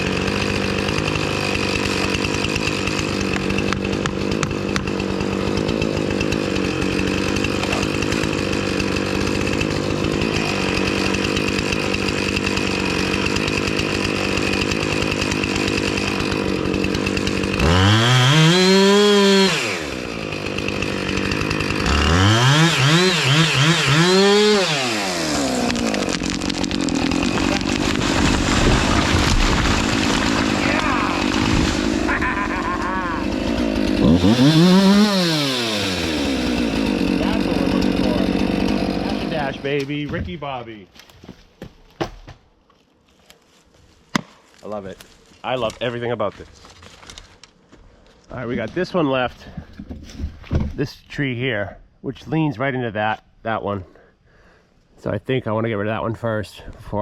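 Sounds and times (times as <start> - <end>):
chainsaw idling and revving: 0.0 - 40.1.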